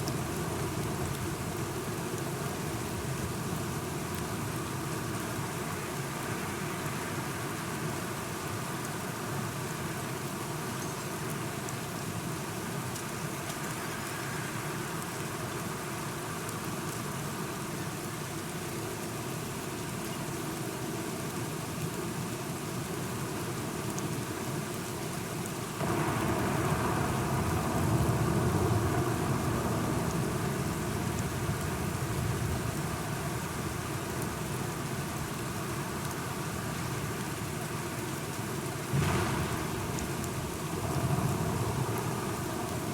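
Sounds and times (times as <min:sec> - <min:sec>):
steady rain falling: 0:00.0 - 0:42.9
thunder rumble: 0:25.8 - 0:33.2, 0:38.9 - 0:42.9.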